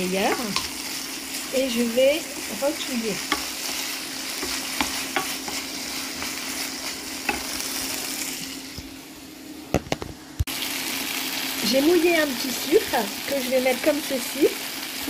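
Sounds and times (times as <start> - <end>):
food sizzling in a frying pan: 0.0 - 15.0
wooden spatula scraping pan: 0.1 - 8.5.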